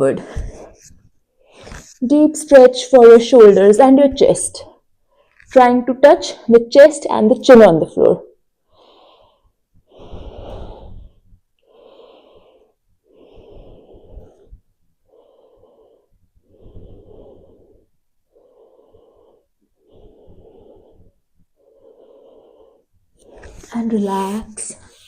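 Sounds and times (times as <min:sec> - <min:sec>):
woman breathing deeply: 0:08.6 - 0:23.7.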